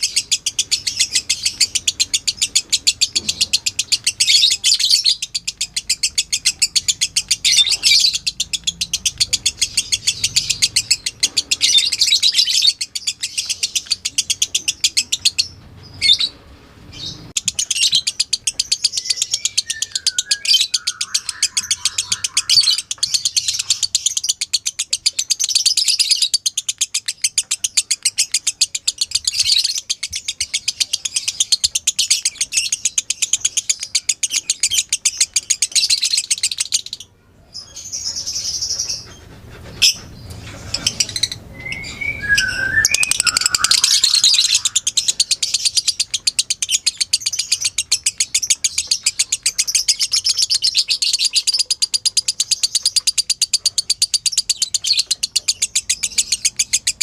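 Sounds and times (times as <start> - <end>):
lovebird chattering: 0.0 - 16.3, 17.0 - 57.0.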